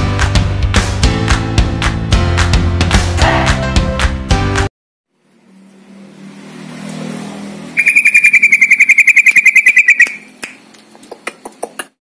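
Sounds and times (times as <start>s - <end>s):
high trill of chirps: 7.8s - 10.6s.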